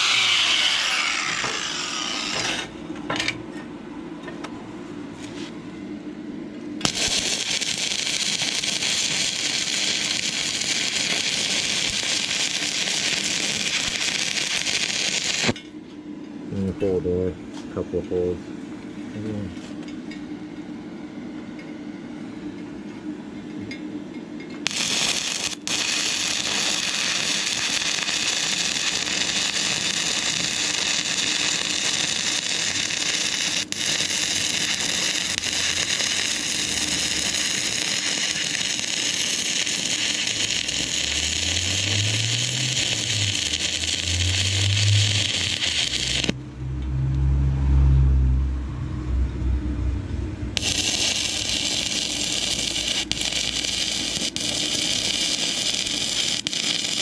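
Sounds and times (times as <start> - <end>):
welding arc crackling: 0.0 - 2.7, 6.8 - 15.6, 24.6 - 46.4, 50.6 - 57.0
low rumbling: 40.4 - 52.4.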